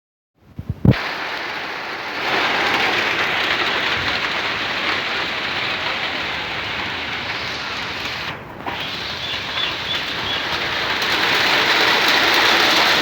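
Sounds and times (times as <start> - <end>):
steady rain falling: 0.9 - 13.0.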